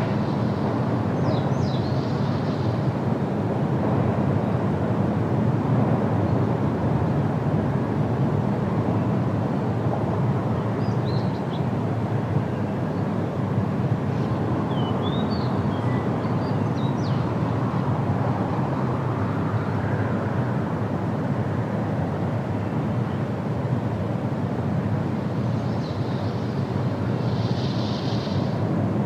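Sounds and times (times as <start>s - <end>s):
wind through trees: 0.0s - 29.0s.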